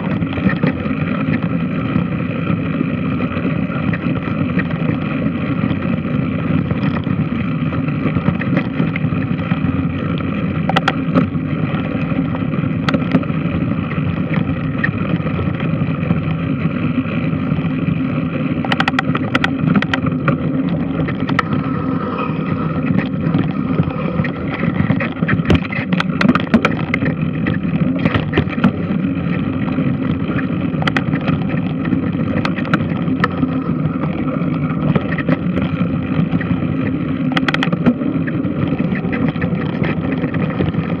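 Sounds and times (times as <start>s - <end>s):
washing machine drone: 0.0s - 41.0s
sharp clicks and knocks: 8.0s - 11.9s, 12.8s - 13.3s, 18.6s - 21.6s, 22.8s - 41.0s.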